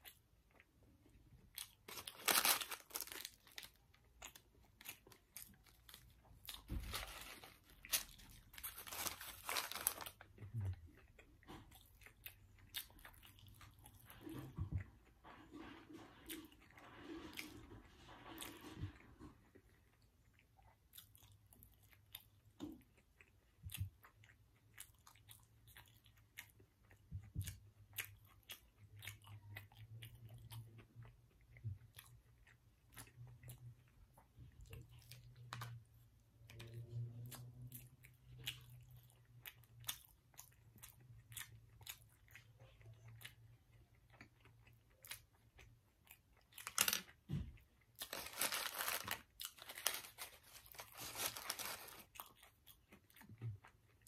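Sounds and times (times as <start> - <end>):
food crunching: 0.0 - 54.0
person chewing: 0.0 - 54.0
paper sleeve rustling: 1.9 - 3.3, 6.8 - 10.0, 48.1 - 52.0.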